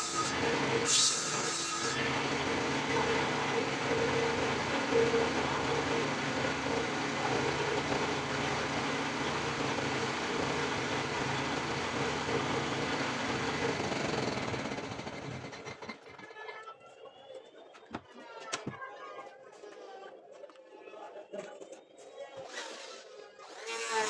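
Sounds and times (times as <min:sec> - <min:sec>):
power tool running against wood: 0:00.0 - 0:15.8, 0:23.4 - 0:24.0.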